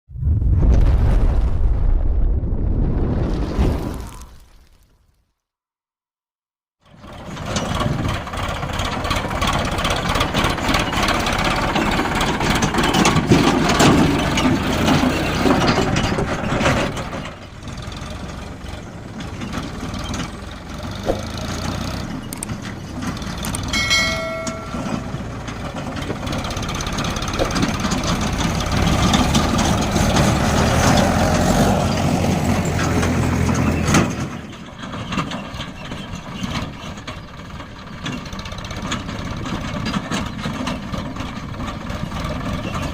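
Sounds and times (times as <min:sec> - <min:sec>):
tractor diesel engine under load: 0:06.8 - 0:42.9
brief high tone: 0:23.7 - 0:25.4.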